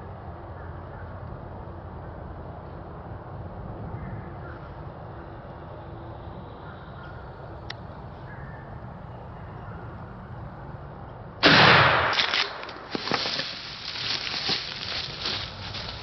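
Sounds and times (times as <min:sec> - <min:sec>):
loud shotgun shot: 0:11.4 - 0:12.8
rustling: 0:12.2 - 0:16.0.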